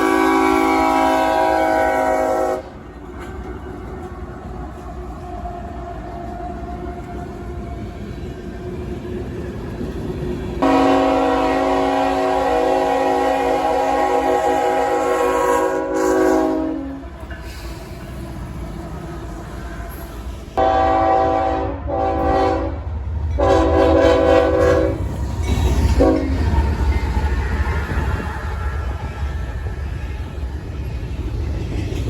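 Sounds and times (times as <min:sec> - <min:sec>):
locomotive air horn blasts: 0:00.0 - 0:02.8, 0:10.6 - 0:17.1, 0:20.6 - 0:22.8, 0:23.4 - 0:25.1, 0:26.0 - 0:26.4
train rumbling past: 0:00.0 - 0:32.0.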